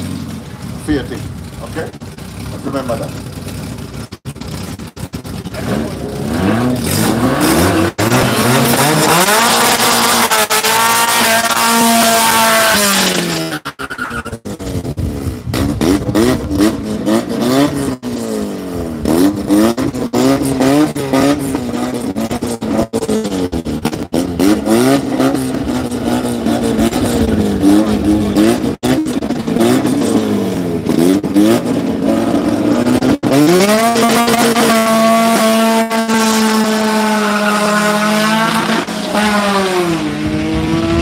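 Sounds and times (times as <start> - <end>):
engine idling: 0.0 - 6.2
car engine revving: 0.0 - 41.0.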